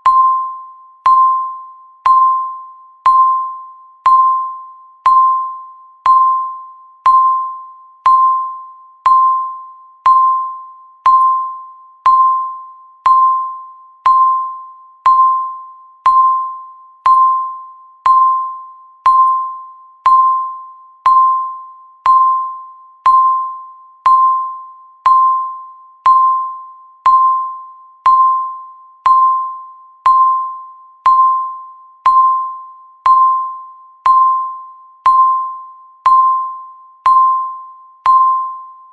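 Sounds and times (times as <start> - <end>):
countdown timer beeping: 0.0 - 38.9.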